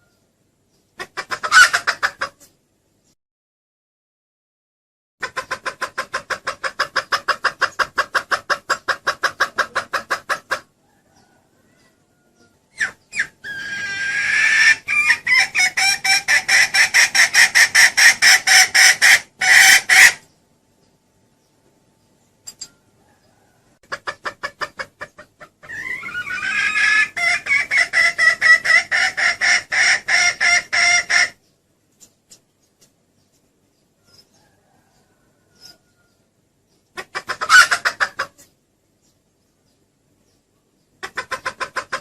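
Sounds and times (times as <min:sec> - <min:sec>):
hen cackling: 0:01.0 - 0:02.6, 0:05.2 - 0:20.3, 0:23.0 - 0:31.4, 0:36.9 - 0:38.5, 0:41.0 - 0:42.0.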